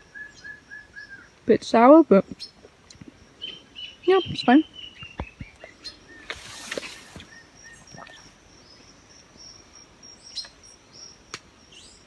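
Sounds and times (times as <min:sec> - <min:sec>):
birds chirping: 0:02.3 - 0:08.8.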